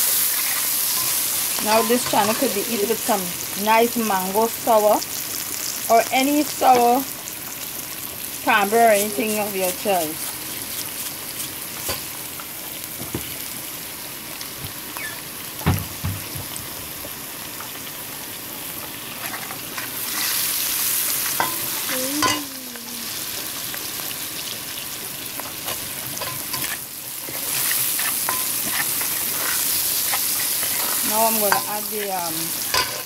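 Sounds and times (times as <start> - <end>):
onions sizzling in hot oil: 0.0 - 33.0.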